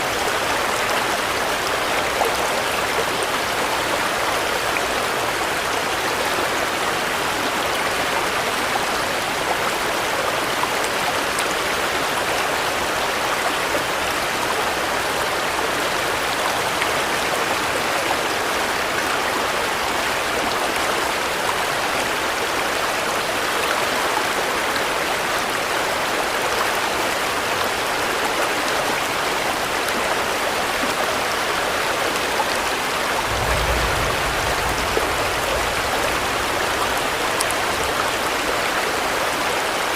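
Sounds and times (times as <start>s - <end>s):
steady rain hiss: 0.0s - 39.9s
low rumble: 33.2s - 38.3s.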